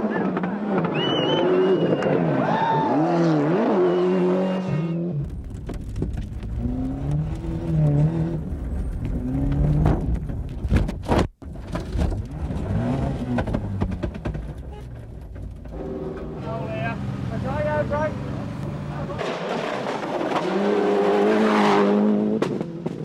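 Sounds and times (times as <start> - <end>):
rally car engine revving: 6.4 - 10.2, 11.7 - 14.8, 15.6 - 23.0.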